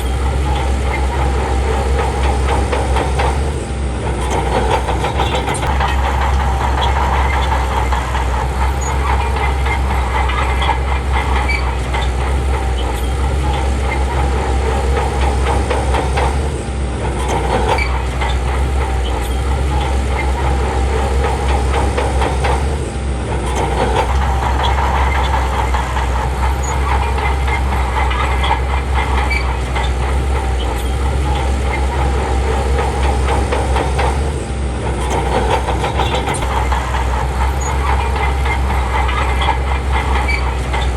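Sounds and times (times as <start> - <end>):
bulldozer diesel engine under load: 0.0 - 40.9
steel tracks clattering: 0.0 - 40.9.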